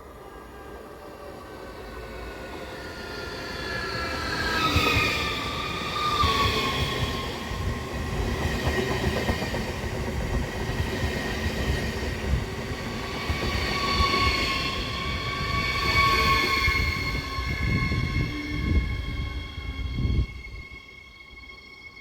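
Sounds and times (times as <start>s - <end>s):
train wheels rumbling on rails: 4.1s - 20.8s.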